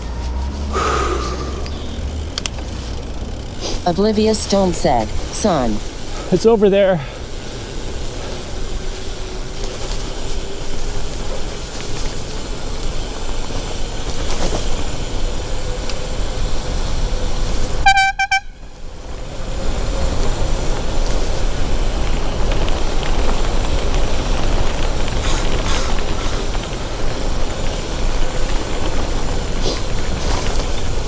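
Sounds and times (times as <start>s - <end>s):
wind and road noise: 0.0s - 31.0s
high-pitched horn toot: 17.8s - 18.7s.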